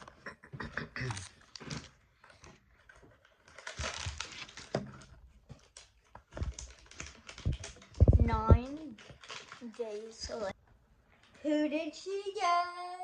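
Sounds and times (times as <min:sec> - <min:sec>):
packaging crinkling and rustling: 0:01.1 - 0:10.6.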